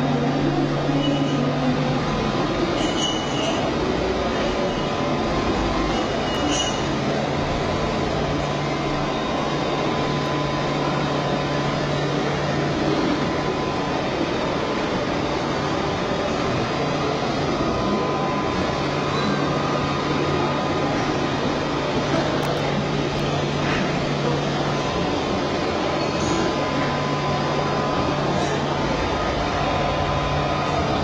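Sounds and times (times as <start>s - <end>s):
factory machinery noise: 0.0s - 31.0s.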